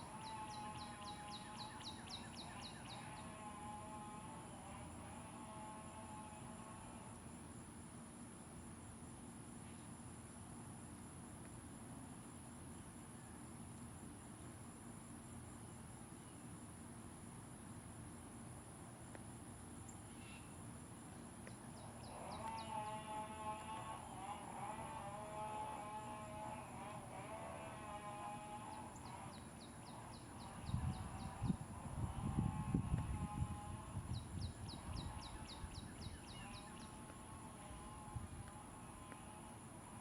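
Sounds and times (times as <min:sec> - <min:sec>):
outdoor background noise: 0:00.0 - 0:40.0
faint ticks: 0:19.0 - 0:19.3, 0:21.4 - 0:22.8, 0:23.5 - 0:24.0, 0:36.3 - 0:40.0.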